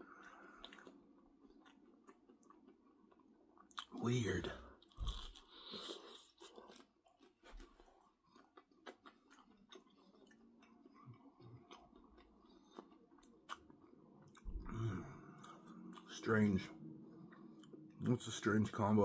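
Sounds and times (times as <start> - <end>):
faint chewing: 0.0 - 4.0, 4.8 - 16.2, 17.2 - 18.3
low voice hum: 14.5 - 15.6.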